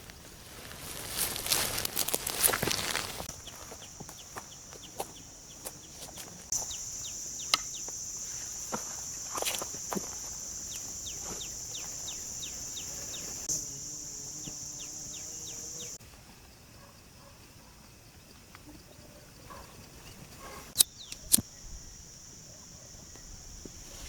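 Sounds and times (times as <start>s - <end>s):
high insect drone: 0.0s - 16.6s, 20.7s - 24.0s
sharp clicks: 20.8s - 21.5s.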